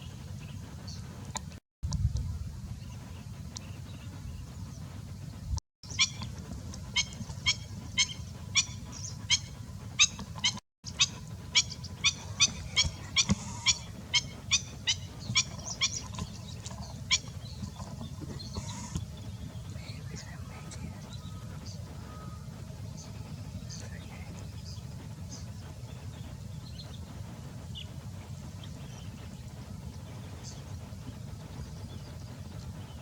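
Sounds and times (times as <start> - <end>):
steady low rumble: 0.0 - 33.0
bird giving sharp calls: 6.9 - 17.8.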